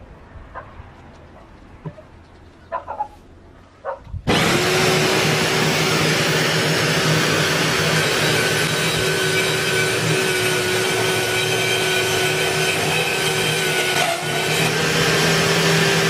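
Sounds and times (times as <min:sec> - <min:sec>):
electric drill whirring: 0:04.3 - 0:16.0.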